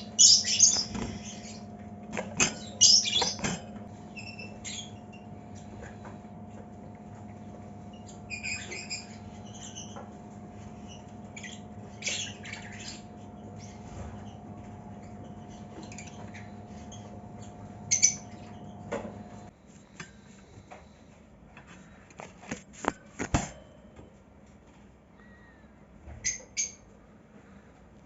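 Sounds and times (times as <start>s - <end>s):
lovebirds squawking and chirping: 0.0s - 1.8s, 2.4s - 5.9s, 7.8s - 10.0s, 10.6s - 14.4s, 15.0s - 18.8s
steady hum: 0.0s - 24.6s.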